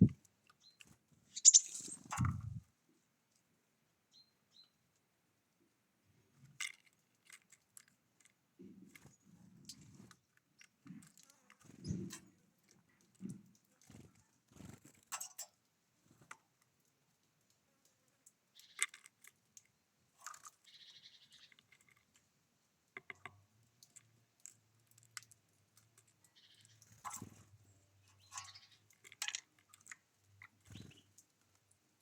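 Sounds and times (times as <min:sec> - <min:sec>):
birds pecking clicks: 0:00.7 - 0:02.6
short bird calls: 0:01.3 - 0:02.6.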